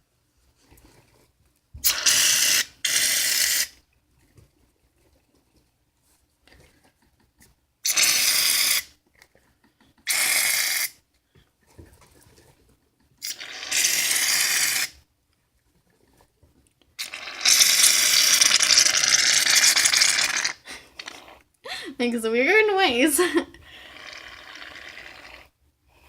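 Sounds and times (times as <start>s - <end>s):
aerosol can spraying foam: 7.9s - 8.9s, 13.2s - 14.9s, 17.0s - 21.2s.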